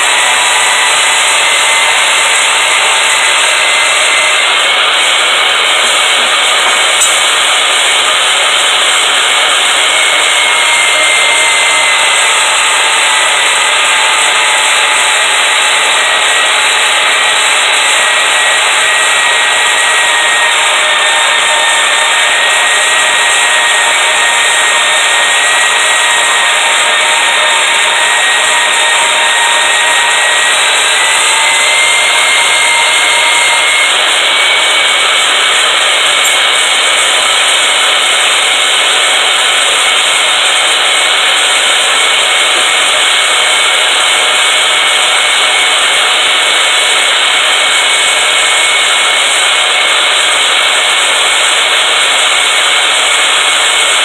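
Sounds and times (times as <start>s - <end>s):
power tool cutting steel: 0.0s - 54.0s.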